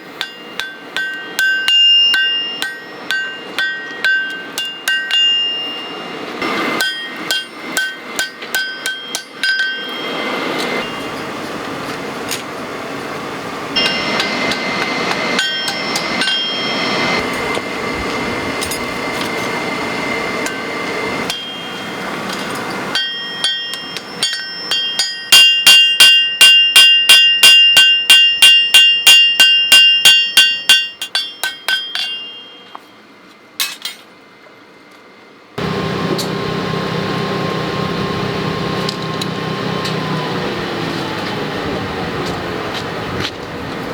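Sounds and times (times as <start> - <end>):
hammer striking steel on anvil: 0.0 - 11.3, 13.8 - 19.5, 20.4 - 32.9
steady rushing noise: 10.0 - 24.3.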